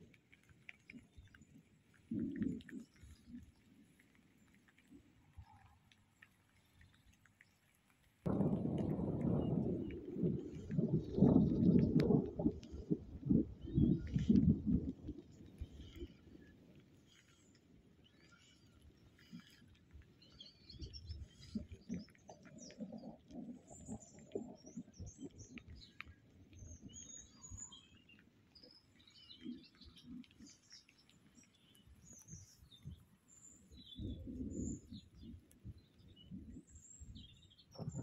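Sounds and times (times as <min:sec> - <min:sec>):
low rumbles and thumps: 0:08.3 - 0:15.8
small birds chirping: 0:13.6 - 0:38.0.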